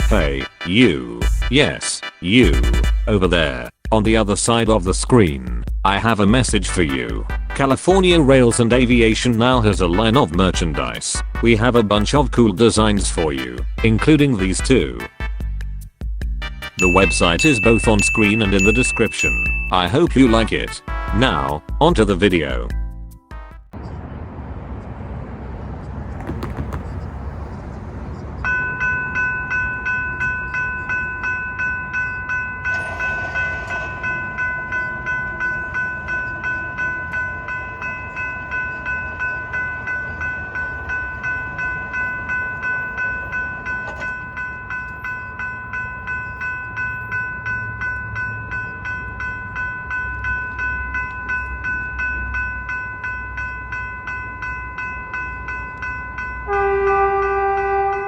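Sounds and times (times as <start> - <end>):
railroad crossing bell ringing: 9.0 - 15.1, 16.8 - 22.8, 28.4 - 58.0.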